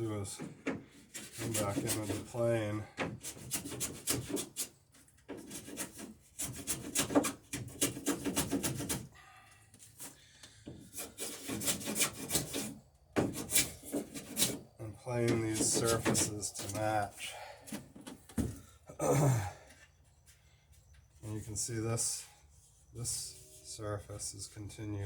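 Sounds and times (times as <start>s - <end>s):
hand plane shaving wood: 0.2s - 9.1s, 9.8s - 17.9s.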